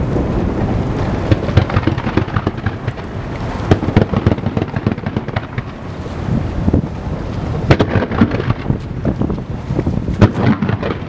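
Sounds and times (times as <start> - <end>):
low rolling rumble: 0.0 - 11.0
fireworks booms and cracks: 1.2 - 5.8, 7.6 - 9.4, 10.1 - 11.0.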